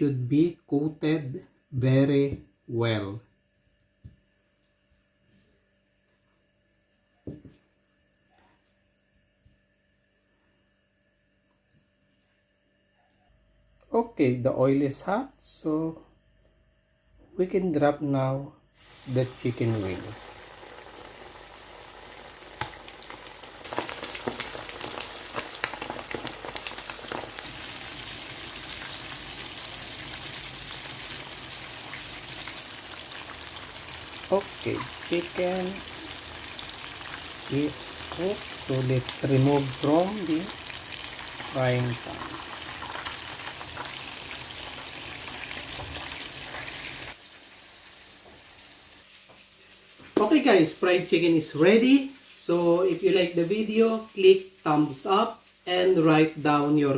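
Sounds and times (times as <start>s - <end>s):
faint hiss: 18.4s - 22.4s, 37.4s - 40.7s, 41.5s - 42.4s, 47.1s - 56.9s
chicken frying in hot oil: 18.8s - 56.9s.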